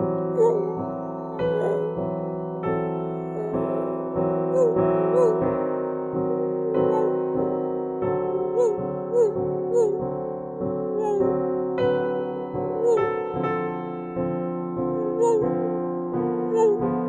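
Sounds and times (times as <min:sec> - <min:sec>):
piano playing slow chords: 0:00.0 - 0:17.0
man imitating dog howling: 0:00.4 - 0:00.8, 0:01.4 - 0:02.0, 0:03.2 - 0:03.8, 0:04.5 - 0:05.6, 0:06.3 - 0:07.5, 0:08.5 - 0:10.1, 0:10.9 - 0:11.4, 0:12.8 - 0:13.2, 0:15.0 - 0:15.7, 0:16.4 - 0:16.9.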